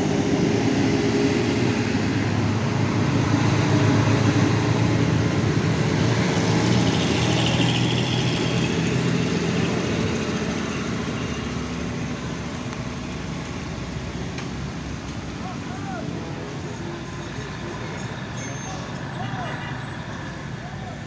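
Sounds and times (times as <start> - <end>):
rain and tyres on wet road: 0.0 - 17.5
truck diesel engine labouring: 0.0 - 21.0.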